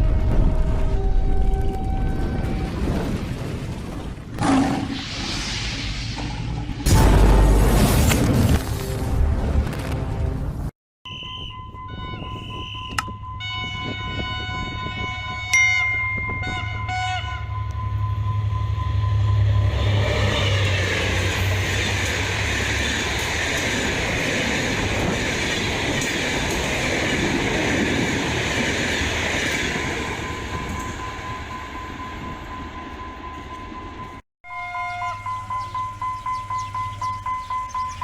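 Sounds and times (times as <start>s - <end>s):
diesel locomotive engine rumble: 11.5s - 38.0s.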